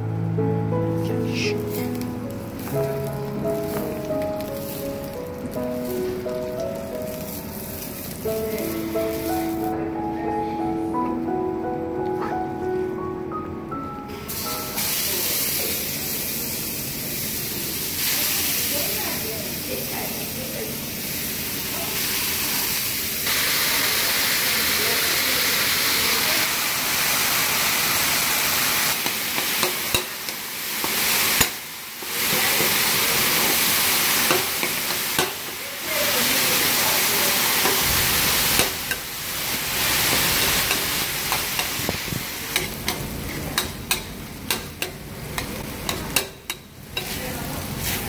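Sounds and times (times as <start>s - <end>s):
food sizzling in a hot pan: 1.4s - 9.7s, 14.2s - 48.0s
utensil clicking against pan: 29.0s - 31.6s, 42.5s - 47.1s.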